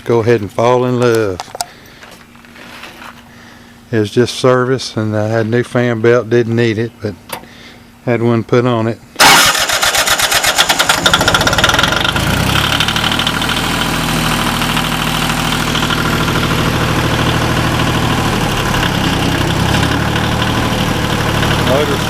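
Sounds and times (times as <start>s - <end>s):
diesel engine idling: 9.2s - 22.0s
starter cranking diesel engine: 9.2s - 22.0s.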